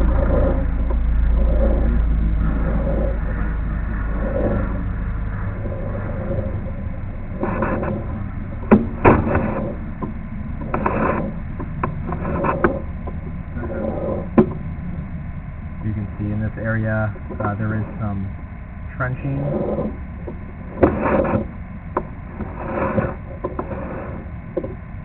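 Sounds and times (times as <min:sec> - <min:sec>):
low engine-like rumble: 0:00.0 - 0:25.0
short scraping noises: 0:07.4 - 0:08.2, 0:09.0 - 0:09.8, 0:10.6 - 0:11.4, 0:12.0 - 0:12.8, 0:20.7 - 0:21.5, 0:22.3 - 0:24.3.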